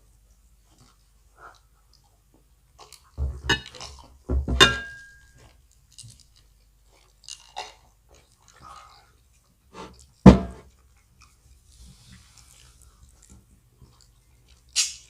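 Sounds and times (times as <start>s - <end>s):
faint chewing: 0.0s - 4.2s, 5.2s - 15.0s
dishes knocking and clinking: 3.2s - 5.3s, 10.2s - 10.7s.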